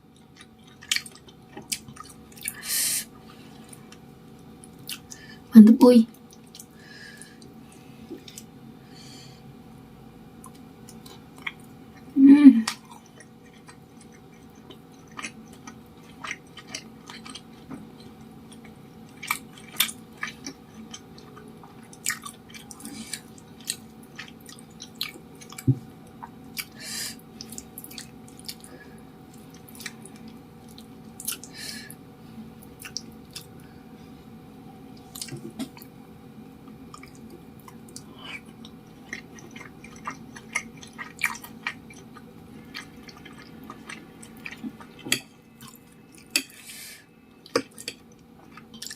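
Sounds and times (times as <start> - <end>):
wet chewing mouth sounds: 12.7 - 26.8, 27.4 - 28.7, 36.9 - 46.6, 47.4 - 48.9.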